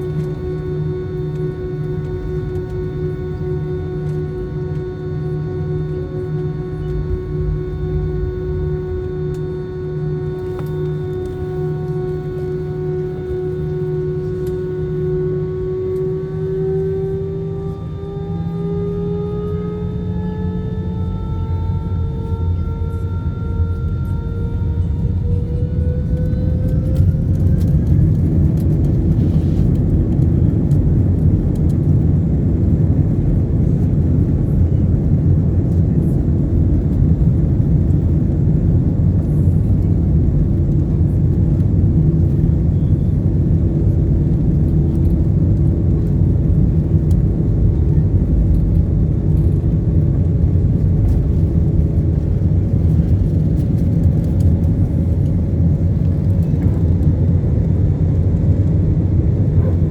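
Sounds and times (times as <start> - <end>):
rising engine tone: 0.0 - 30.0
airplane engines roaring: 0.0 - 59.9.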